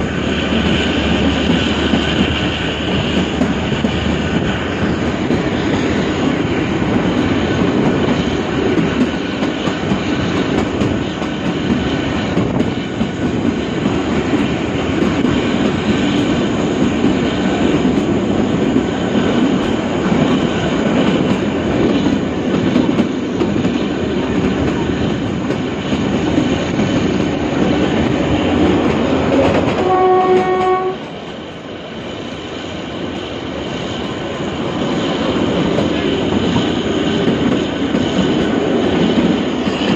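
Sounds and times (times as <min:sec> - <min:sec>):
train wheels clattering over rails: 0:00.0 - 0:39.9
locomotive horn: 0:29.3 - 0:31.1.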